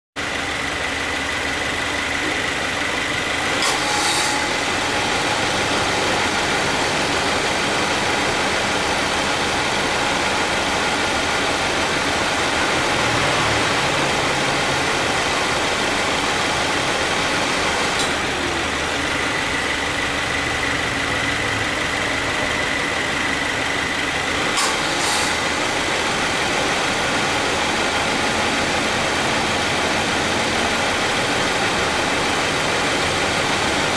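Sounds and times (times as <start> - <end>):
car engine idling: 0.2 - 33.9
compressor noise engaging: 2.4 - 33.0.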